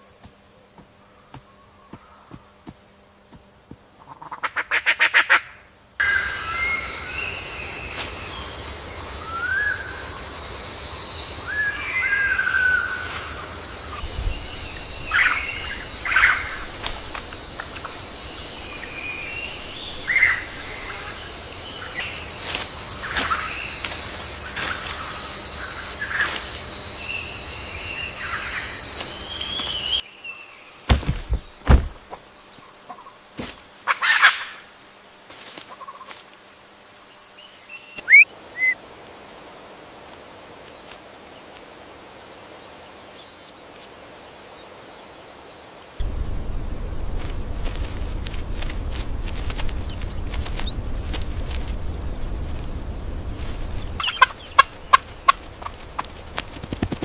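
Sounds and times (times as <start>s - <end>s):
steady high-pitched whine: 5.8s - 33.9s, 46.0s - 57.0s
bird chirps and whistled calls: 37.8s - 38.8s
fast rattling call: 53.5s - 57.0s.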